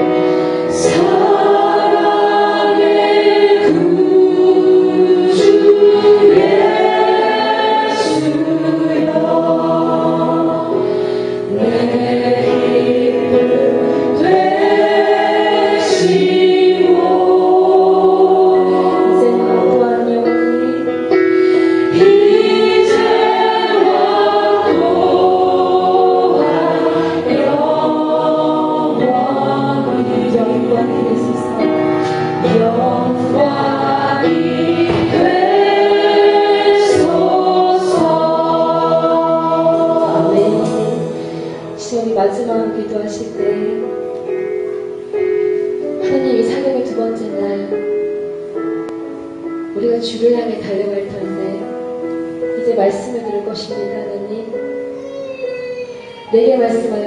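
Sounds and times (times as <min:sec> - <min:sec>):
group singing worship song: 0:00.0 - 0:43.9.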